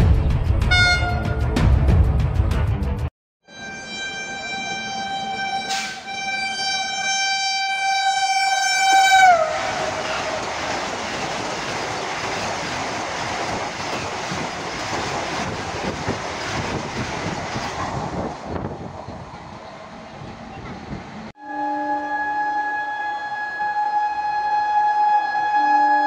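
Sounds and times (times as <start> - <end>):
train horn: 0.7 - 1.5, 3.4 - 10.8, 21.4 - 26.0
train coaches rushing and rattling: 8.6 - 21.3.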